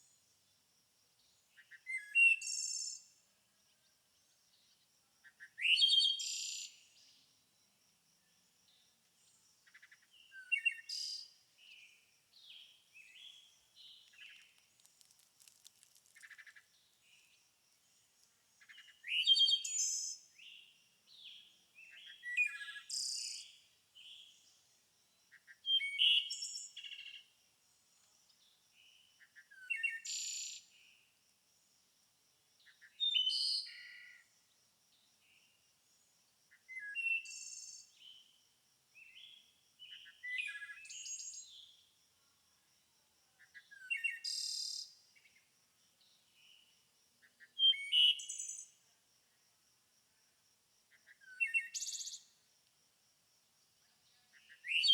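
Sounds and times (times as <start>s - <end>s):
songbirds singing: 8.2s - 27.3s, 39.0s - 41.9s, 50.9s - 52.4s, 53.8s - 54.9s.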